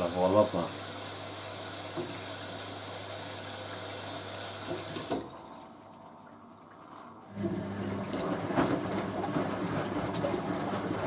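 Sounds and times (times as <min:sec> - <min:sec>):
washing machine water inflow: 0:00.0 - 0:11.0.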